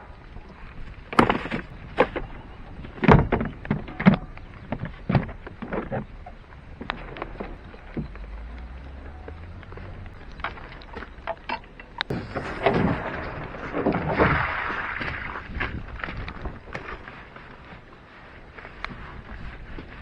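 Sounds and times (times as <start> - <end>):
faint low hum: 0.0 - 20.0
knocks and thuds: 1.1 - 8.5.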